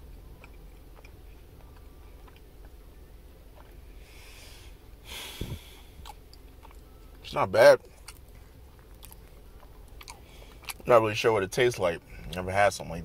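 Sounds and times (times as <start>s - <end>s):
person chewing sticky cake: 0.0s - 5.0s, 5.6s - 7.2s, 7.8s - 11.0s.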